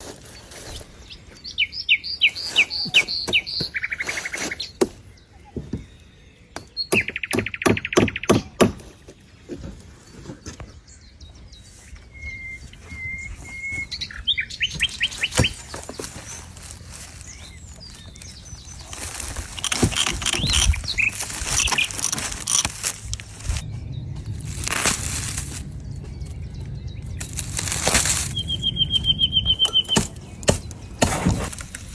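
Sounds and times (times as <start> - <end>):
bird chirping: 0.3 - 31.9
whistled bird notes: 0.6 - 8.4, 10.2 - 15.8, 28.2 - 31.5.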